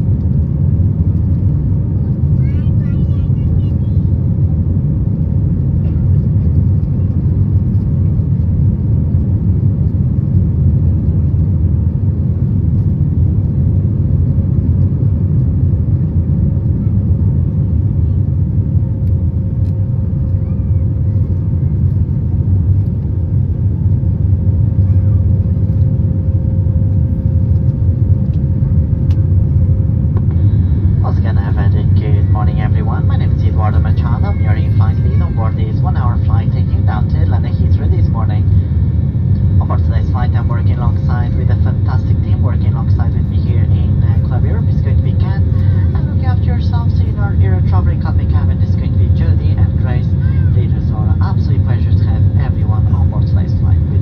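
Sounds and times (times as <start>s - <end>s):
engine and airflow rumble: 0.0s - 54.0s
thin steady hum: 24.9s - 54.0s.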